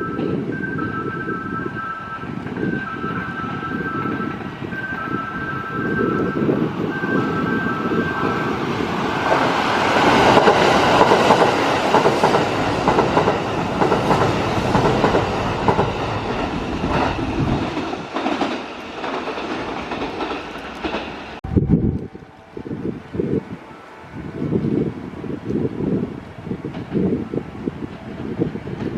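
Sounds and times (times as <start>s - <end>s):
electric train passing: 0.0s - 28.9s
wind buffeting microphone: 0.0s - 28.9s
train wheels clicking over rail joints: 9.2s - 21.4s.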